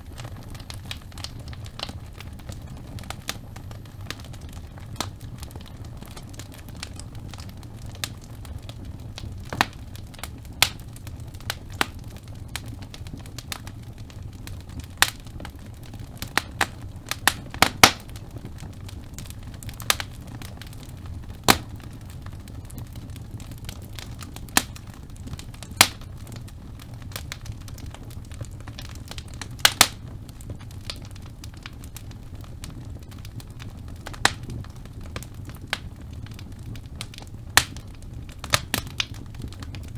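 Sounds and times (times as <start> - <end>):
logs burning in fireplace: 0.0 - 39.9.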